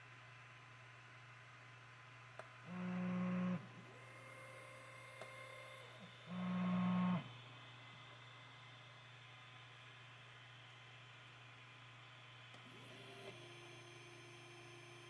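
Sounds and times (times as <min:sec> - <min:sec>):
electrical hum: 0:02.5 - 0:10.7.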